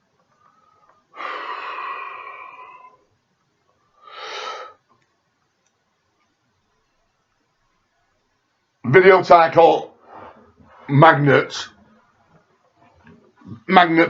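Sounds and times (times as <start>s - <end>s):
person breathing heavily: 0.4s - 3.0s, 4.0s - 4.8s, 10.0s - 10.9s.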